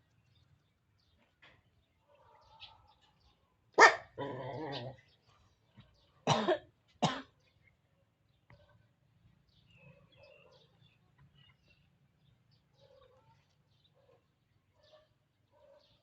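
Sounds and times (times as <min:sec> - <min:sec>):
animal drawn-out call: 0:03.8 - 0:05.0
animal barking calls: 0:03.8 - 0:05.2.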